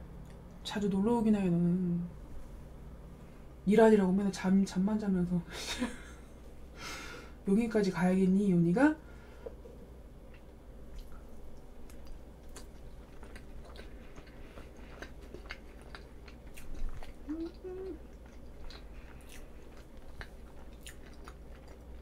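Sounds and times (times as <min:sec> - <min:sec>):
wet chewing with mouth clicks: 0:09.4 - 0:22.0.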